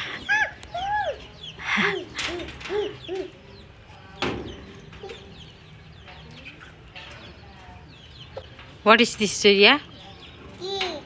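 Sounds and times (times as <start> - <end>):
chickens clucking: 0.0 - 8.8.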